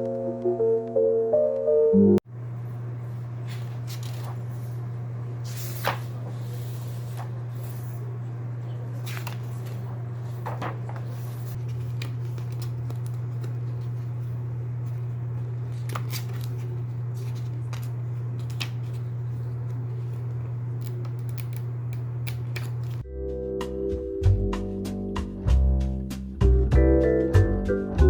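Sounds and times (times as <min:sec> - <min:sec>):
music: 0:00.0 - 0:02.2, 0:23.0 - 0:28.0
steady low hum: 0:02.2 - 0:23.1
paper rustling: 0:03.0 - 0:23.0.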